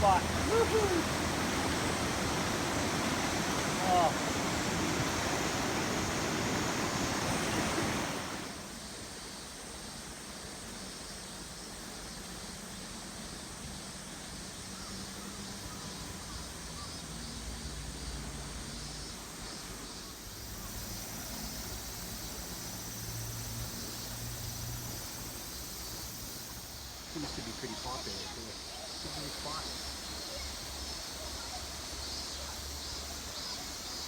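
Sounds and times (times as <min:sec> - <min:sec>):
river water rushing over rocks: 0:00.0 - 0:08.9.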